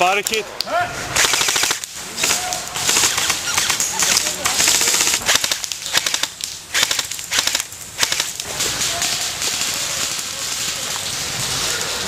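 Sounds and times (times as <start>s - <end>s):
airsoft rifle bursts: 1.2s - 8.4s
steady hiss: 4.4s - 12.0s.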